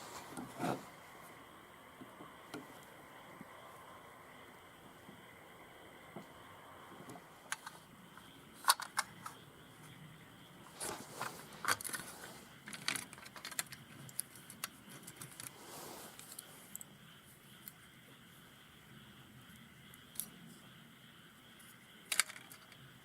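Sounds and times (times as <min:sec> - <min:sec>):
metal parts clicking and clinking: 0:11.6 - 0:15.5, 0:22.1 - 0:22.8.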